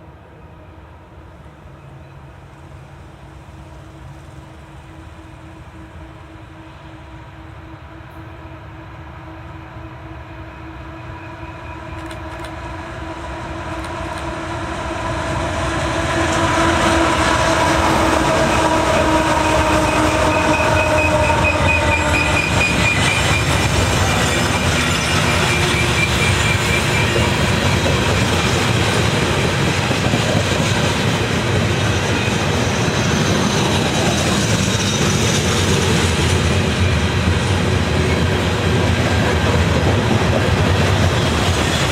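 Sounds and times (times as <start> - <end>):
train passing on rails: 0.0 - 41.9
high wheel squeal: 18.5 - 28.5.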